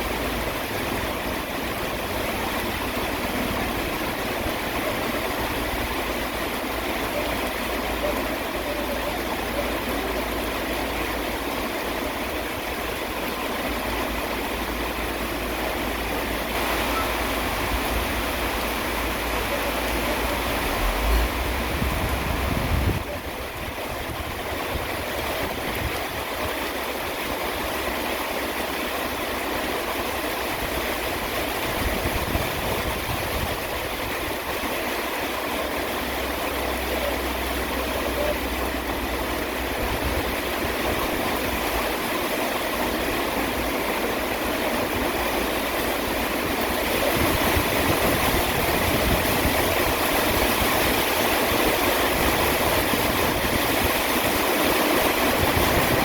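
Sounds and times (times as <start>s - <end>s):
steady rain: 0.0s - 56.0s
low hum: 19.6s - 23.0s.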